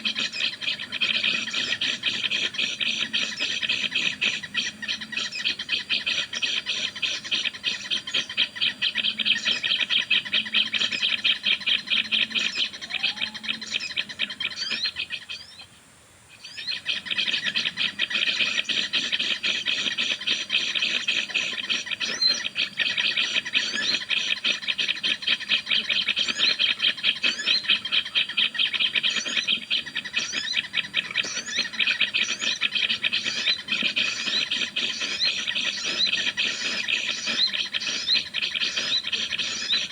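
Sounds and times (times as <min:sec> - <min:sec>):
songbird ratchet-like chatter: 0:17.2 - 0:39.9.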